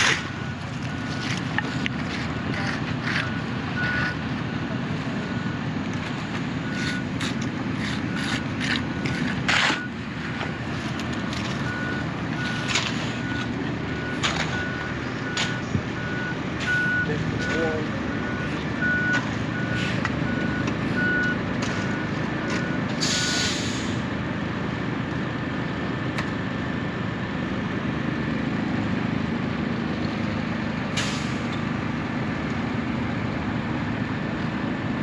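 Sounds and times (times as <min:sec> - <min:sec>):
reversing alarm beeping: 0:00.0 - 0:05.8, 0:06.6 - 0:07.2, 0:07.9 - 0:10.6, 0:11.6 - 0:23.6
truck diesel engine running: 0:00.0 - 0:35.0
air brake hiss: 0:23.0 - 0:24.0, 0:31.0 - 0:31.4.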